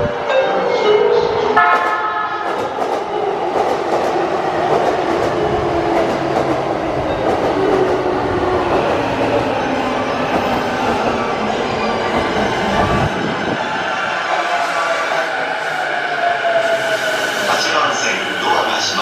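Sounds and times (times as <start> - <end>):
train horn: 1.6 - 2.5.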